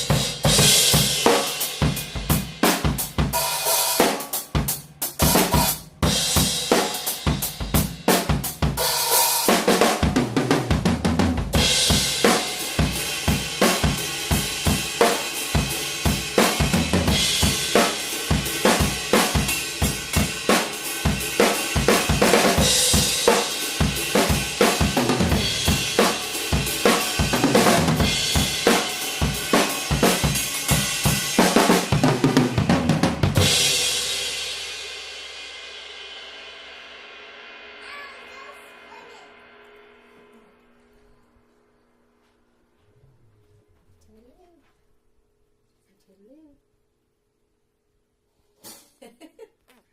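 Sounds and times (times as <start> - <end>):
snare drum: 0.0 - 34.4.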